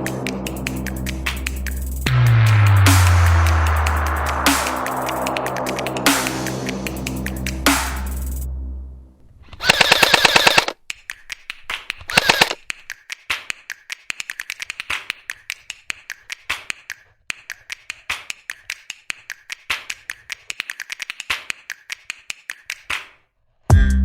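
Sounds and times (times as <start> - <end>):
airsoft gun full-auto bursts: 9.6 - 10.8, 12.1 - 12.6
airsoft gun single shots: 9.6 - 10.8, 12.1 - 12.6.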